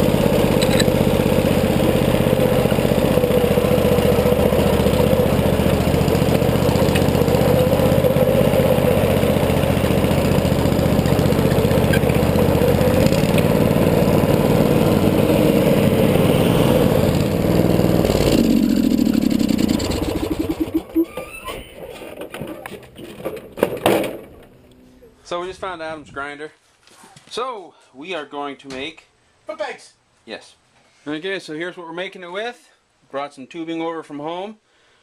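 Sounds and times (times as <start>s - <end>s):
lawn tractor engine running: 0.0s - 25.0s.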